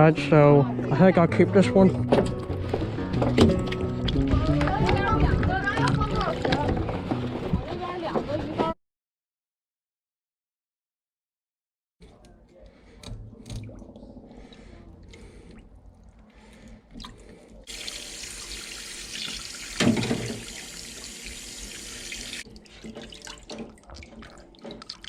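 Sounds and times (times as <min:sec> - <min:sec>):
tap water running into sink: 0:17.7 - 0:22.4.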